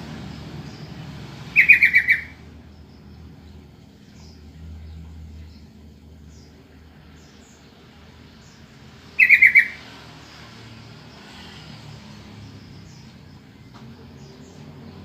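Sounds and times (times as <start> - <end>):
bulbul call: 1.6 - 2.4, 9.2 - 9.8.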